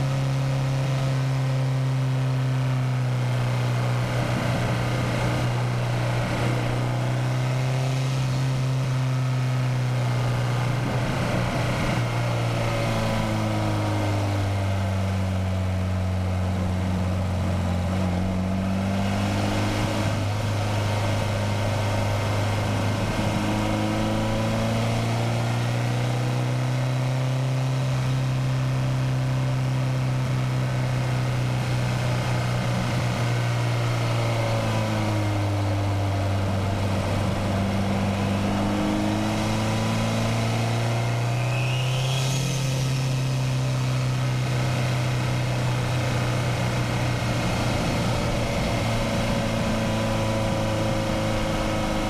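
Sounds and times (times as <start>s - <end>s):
car engine running under load: 0.0s - 52.0s
high turbo whistle: 41.0s - 43.8s.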